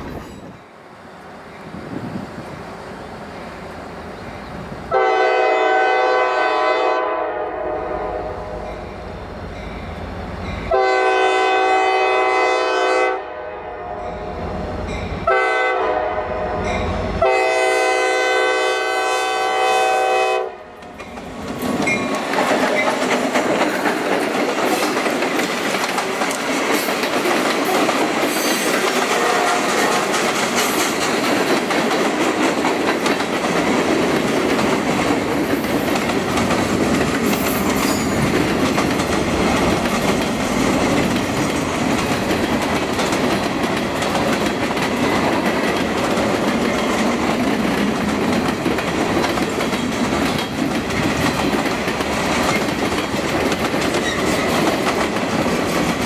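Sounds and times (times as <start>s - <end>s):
train wheels rushing on rail: 0.0s - 56.0s
locomotive air horn blasts: 4.9s - 8.6s, 10.7s - 14.2s, 15.2s - 20.7s, 29.1s - 30.0s.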